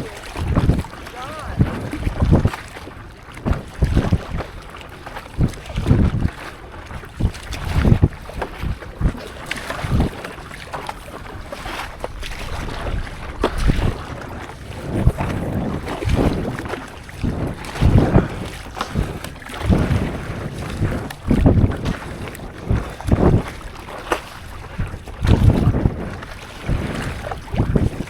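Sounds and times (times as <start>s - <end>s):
paddle strokes in water: 0.0s - 28.0s
wind buffeting microphone: 0.0s - 28.0s.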